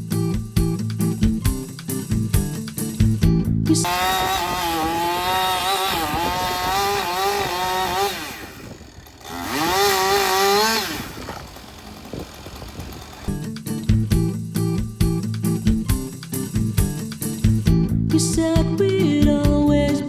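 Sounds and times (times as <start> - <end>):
chainsaw engine revving: 3.8 - 13.4.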